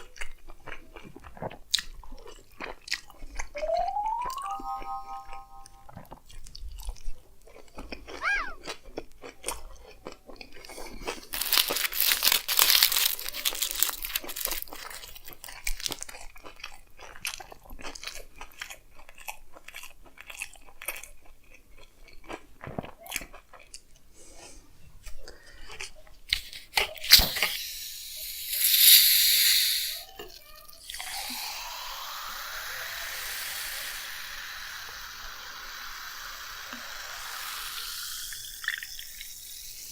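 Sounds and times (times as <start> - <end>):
chewing and crunching: 0.0 - 3.5, 6.0 - 27.6
wet mouth sounds: 25.1 - 39.9
liquid pouring into vessel: 26.3 - 39.9.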